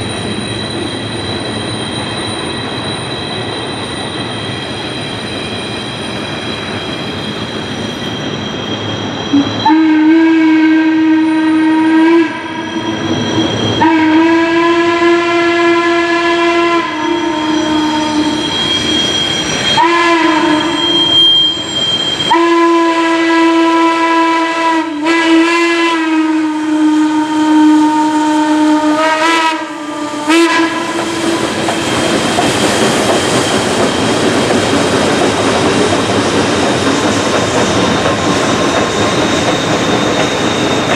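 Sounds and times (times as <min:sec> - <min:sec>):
moving train rumble: 0:00.0 - 0:40.9
steam whistle blasts: 0:09.2 - 0:32.0.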